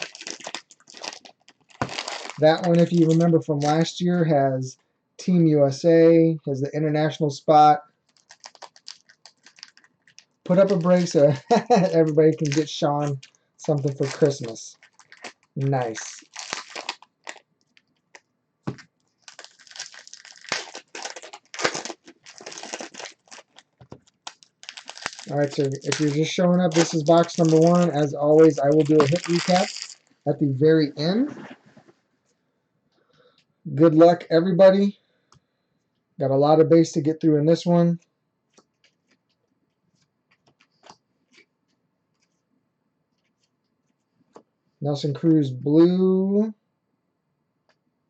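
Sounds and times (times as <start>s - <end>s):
plastic wrapping crinkling and tearing: 0.0s - 3.9s, 8.0s - 30.2s
trading cards clicking and rustling: 8.1s - 30.0s.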